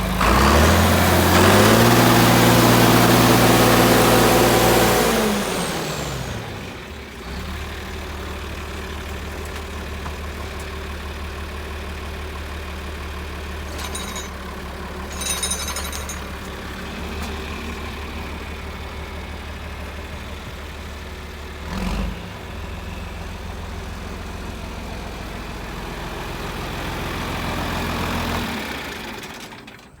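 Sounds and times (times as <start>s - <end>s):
tractor diesel engine idling: 6.2s - 15.2s, 16.0s - 21.6s, 22.5s - 30.0s.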